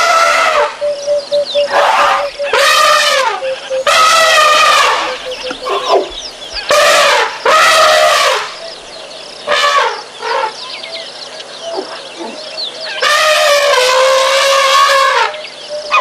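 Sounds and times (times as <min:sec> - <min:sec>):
elephants trumpeting: 0:01.6 - 0:08.6, 0:13.0 - 0:15.3.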